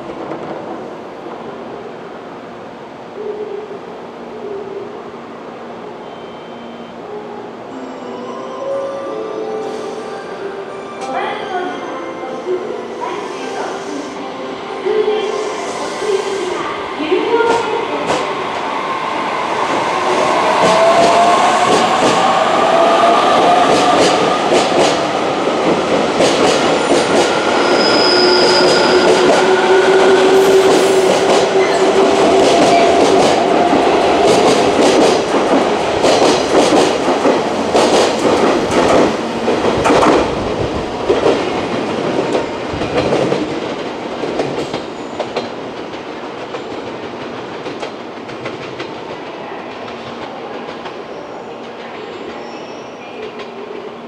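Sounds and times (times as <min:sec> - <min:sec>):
train running noise: 0:12.6 - 0:52.4.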